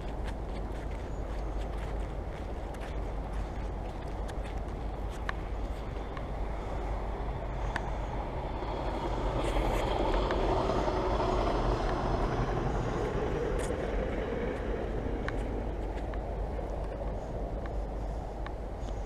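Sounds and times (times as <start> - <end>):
vehicle passing by: 5.6 - 17.8.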